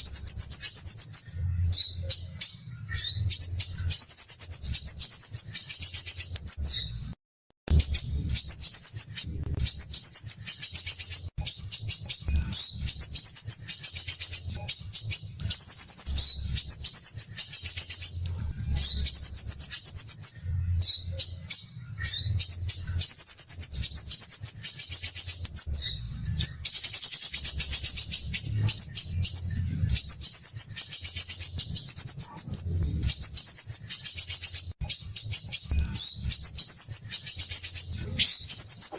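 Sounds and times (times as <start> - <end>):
bird singing high trills: 0.0 - 7.1, 7.7 - 38.9
faint low rumble: 7.7 - 10.3, 31.5 - 33.5.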